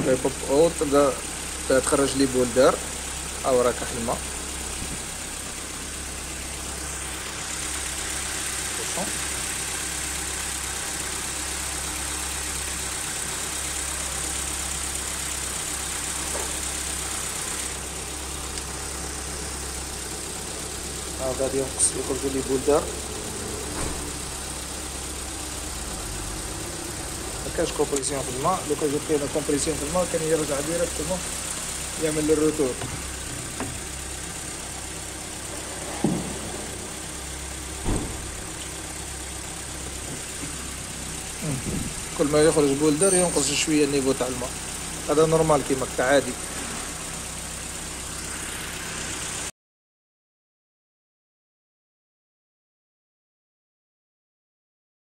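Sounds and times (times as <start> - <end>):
car engine idling: 0.0 - 49.5
brief thuds: 37.8 - 38.2.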